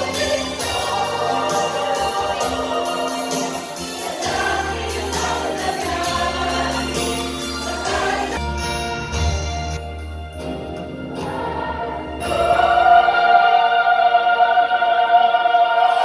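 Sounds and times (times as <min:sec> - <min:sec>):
choir singing a carol: 0:00.0 - 0:09.2, 0:11.1 - 0:16.0
jingling percussion: 0:00.0 - 0:13.3.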